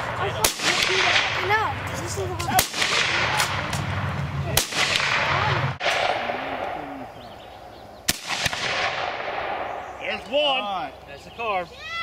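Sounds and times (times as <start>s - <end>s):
gunshots: 0.0s - 7.0s, 8.1s - 9.8s.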